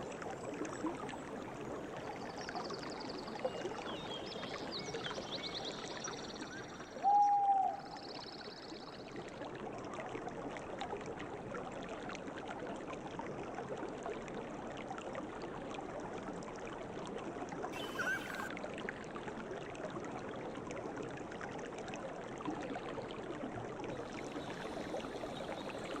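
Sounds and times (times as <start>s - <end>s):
bird trill: 17.8s - 18.5s
birds calling: 17.8s - 18.5s
river flowing: 17.8s - 18.8s, 23.9s - 26.0s.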